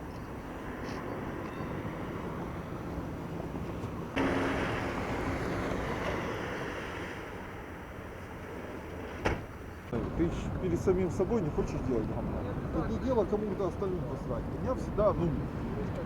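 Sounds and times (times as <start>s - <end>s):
engine low hum: 0.0s - 10.8s
traffic passing: 0.0s - 16.0s.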